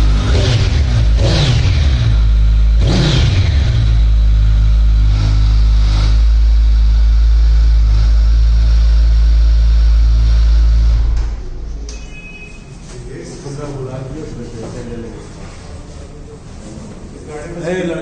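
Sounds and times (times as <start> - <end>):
motorcycle engine running loud: 0.0 - 11.3.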